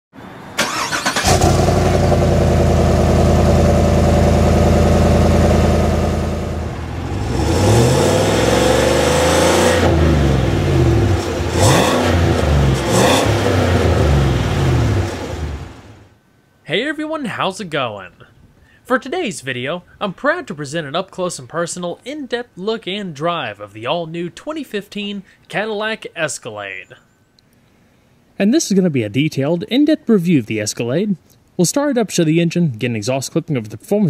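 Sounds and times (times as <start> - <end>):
car engine starting and idling: 0.4 - 16.2
car engine revving: 0.6 - 16.1.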